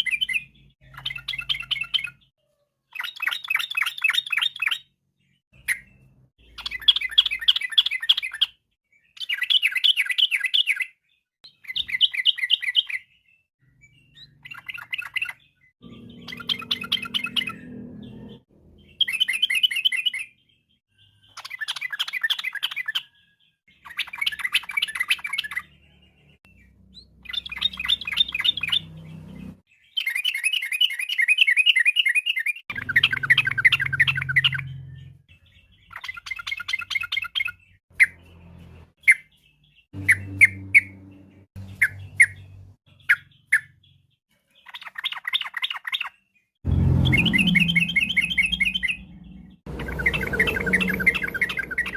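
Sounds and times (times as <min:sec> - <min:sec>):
bird chattering song: 0:00.0 - 0:02.3, 0:02.9 - 0:51.9
sharp bird notes: 0:13.8 - 0:20.4, 0:32.7 - 0:43.7, 0:46.7 - 0:51.9.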